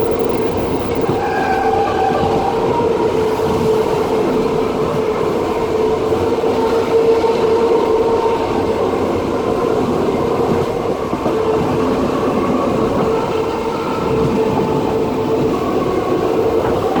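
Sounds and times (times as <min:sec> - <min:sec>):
constant humming tone: 0:00.0 - 0:01.2.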